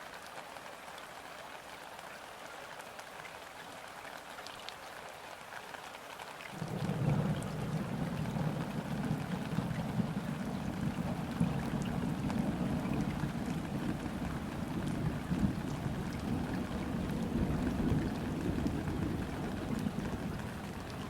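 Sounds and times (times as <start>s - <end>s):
rain falling on river: 0.0s - 21.0s.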